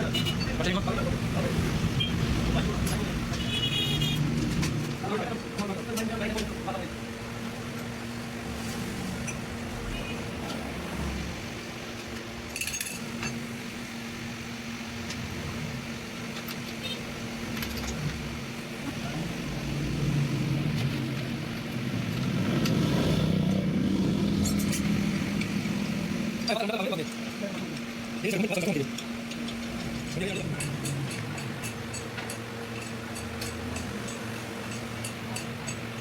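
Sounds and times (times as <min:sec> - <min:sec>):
mechanical hum: 0:00.0 - 0:36.0.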